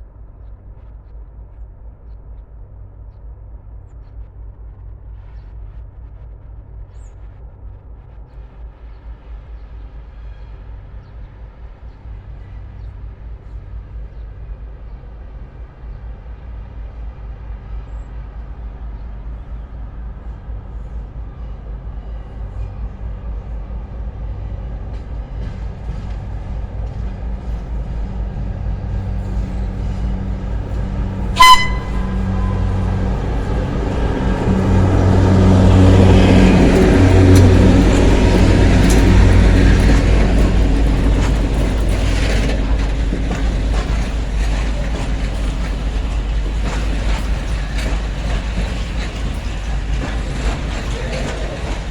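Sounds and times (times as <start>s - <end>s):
locomotive engine hum: 0.0s - 51.9s
train horn blast: 29.5s - 43.0s.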